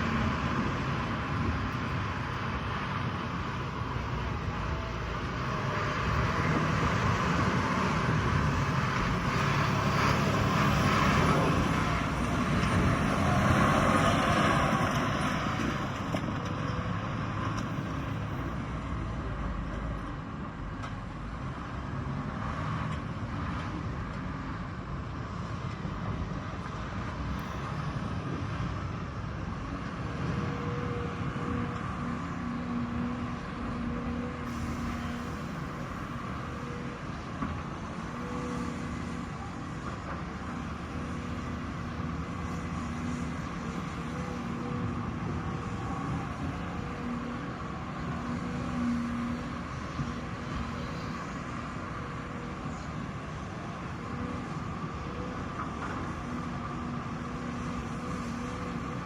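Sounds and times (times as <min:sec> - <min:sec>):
heavy machinery engines rumbling: 0:00.0 - 0:59.0.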